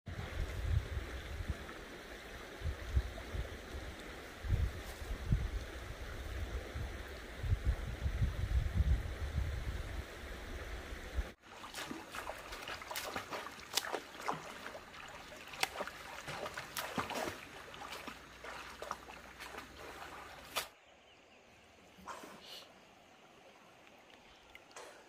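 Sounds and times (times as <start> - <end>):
rushing floodwater rumble: 0.1 - 20.6
water trickling: 11.4 - 20.6, 23.2 - 25.0
small splashes: 11.4 - 20.8.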